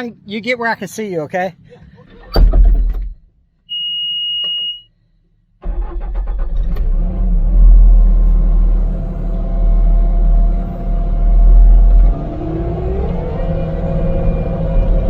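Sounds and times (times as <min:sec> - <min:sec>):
high-pitched warning beep: 0:03.7 - 0:04.9
diesel engine starting and running: 0:05.6 - 0:15.0.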